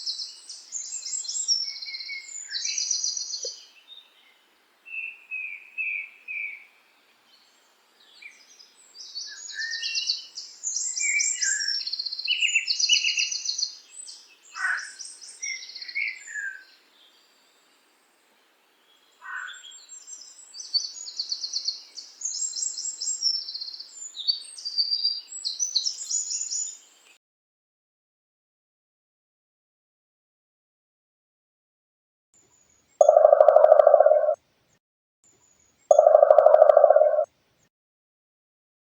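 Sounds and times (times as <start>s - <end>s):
songbird trilling and chirping: 0.0s - 4.3s, 7.4s - 17.2s, 18.9s - 26.9s, 32.9s - 34.4s, 35.8s - 37.3s.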